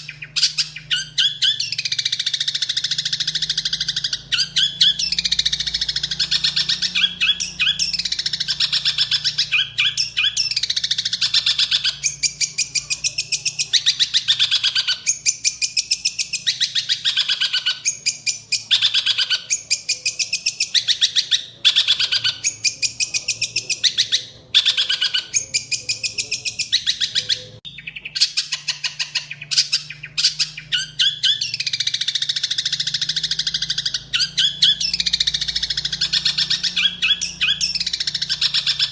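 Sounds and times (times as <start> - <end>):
shrike harsh chattering song: 0.0 - 38.9.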